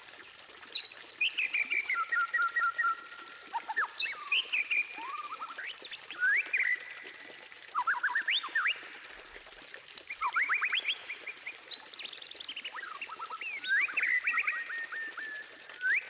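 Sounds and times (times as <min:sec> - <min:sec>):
bird singing whistled notes: 0:00.5 - 0:06.9, 0:11.7 - 0:16.0.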